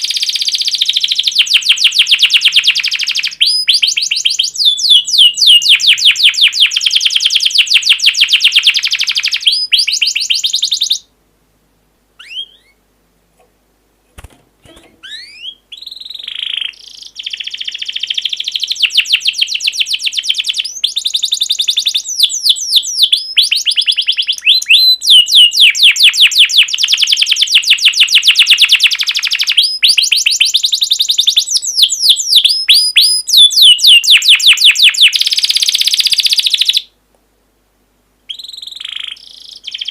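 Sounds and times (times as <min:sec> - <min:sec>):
songbird trilling: 0:12.2 - 0:12.8, 0:15.0 - 0:27.4, 0:28.4 - 0:36.9, 0:38.3 - 0:39.9
faint short bird whistles: 0:15.0 - 0:18.3.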